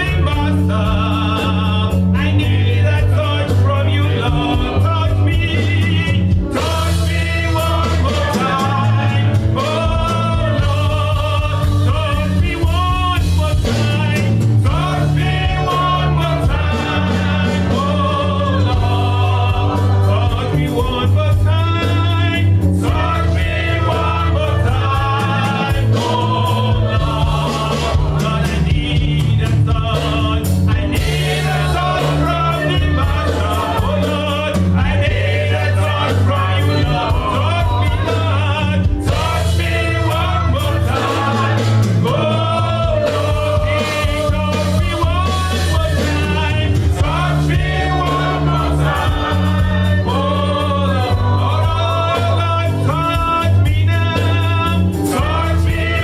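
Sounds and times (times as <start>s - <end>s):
live band bass and drums: 0.0s - 56.0s.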